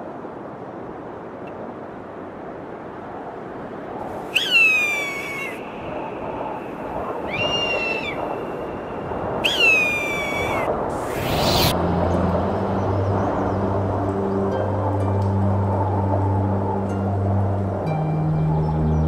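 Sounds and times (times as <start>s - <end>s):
steady rushing noise: 0.0s - 19.0s
bird's high falling cry: 4.4s - 5.7s, 7.2s - 8.6s, 9.4s - 11.7s.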